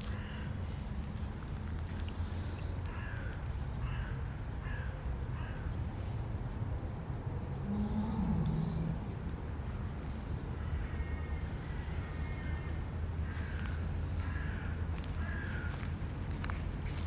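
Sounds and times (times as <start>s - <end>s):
city traffic rumble: 0.0s - 17.0s
low drone: 5.7s - 13.2s
bird calling: 7.6s - 9.2s.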